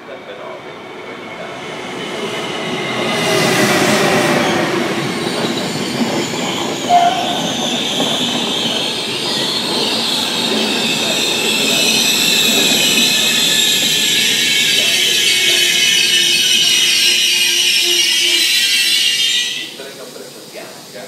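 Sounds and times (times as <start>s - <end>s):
train wheels rushing on rails: 0.0s - 21.0s
high metallic wheel squeal: 2.0s - 20.0s.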